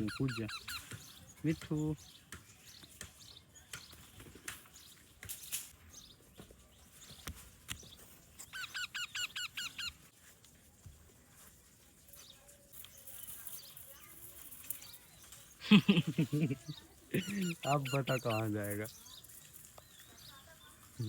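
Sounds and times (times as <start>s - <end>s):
parrot squawking: 0.0s - 0.9s, 8.5s - 10.0s, 17.2s - 18.6s.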